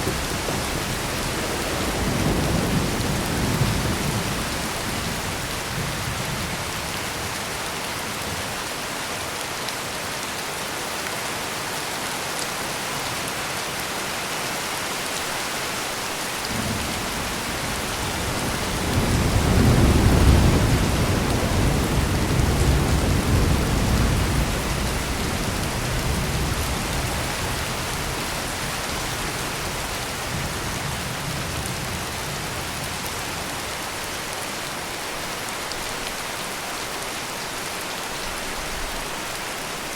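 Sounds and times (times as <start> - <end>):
heavy rain pouring: 0.0 - 39.9
thunder rumbling: 16.5 - 32.8.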